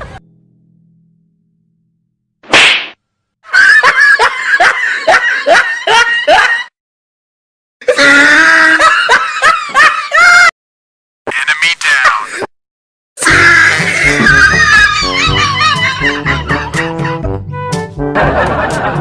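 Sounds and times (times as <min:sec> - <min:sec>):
loud laughter: 0:03.5 - 0:06.7, 0:07.8 - 0:10.5, 0:11.3 - 0:12.5, 0:13.2 - 0:17.2, 0:18.2 - 0:19.0.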